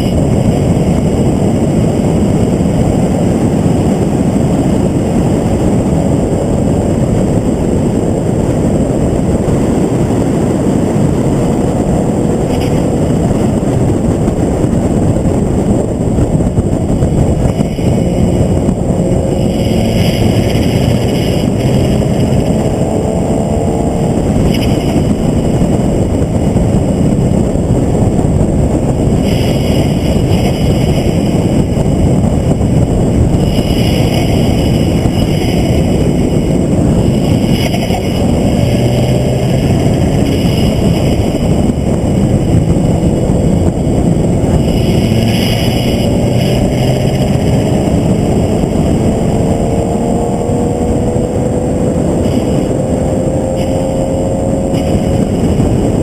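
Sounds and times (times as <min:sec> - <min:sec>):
wind and road noise: 0:00.0 - 0:56.0
race car engine accelerating: 0:17.1 - 0:27.3, 0:28.9 - 0:56.0.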